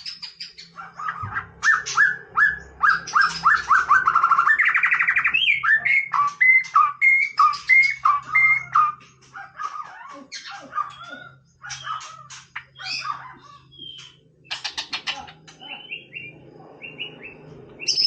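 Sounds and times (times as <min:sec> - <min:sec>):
bird chattering: 0:00.0 - 0:18.0
bird singing whistled phrases: 0:01.6 - 0:09.0, 0:13.7 - 0:14.2.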